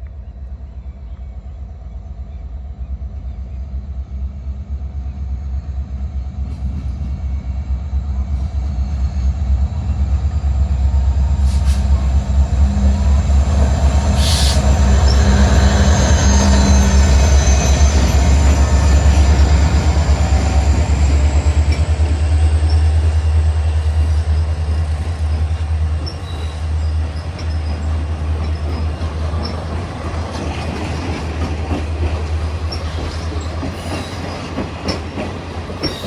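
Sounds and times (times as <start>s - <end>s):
train engine rumble: 0.0s - 36.0s
short high hisses: 14.2s - 14.7s.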